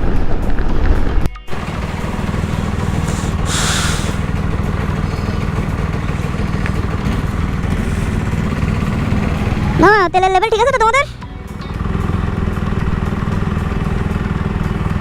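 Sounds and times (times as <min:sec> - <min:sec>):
motorcycle engine cruising: 0:01.5 - 0:15.0
rush of hiss: 0:01.6 - 0:05.5.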